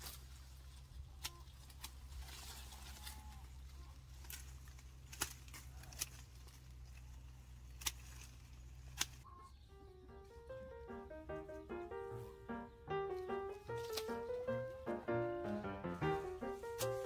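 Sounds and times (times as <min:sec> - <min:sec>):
music with stepping melody: 0:10.1 - 0:17.0.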